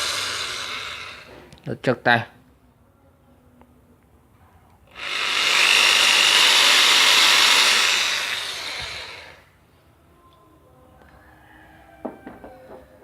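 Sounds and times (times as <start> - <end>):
impact drill high whine: 0.0 - 1.4, 4.9 - 9.5.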